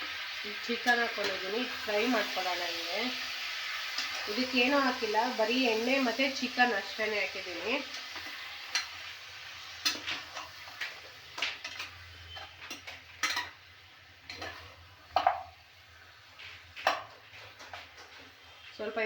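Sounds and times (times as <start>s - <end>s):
faint oil sizzle: 0.0s - 19.0s
spoon scraping a pan: 0.7s - 2.8s, 3.4s - 4.8s, 7.5s - 13.6s, 14.2s - 15.6s, 16.4s - 18.7s.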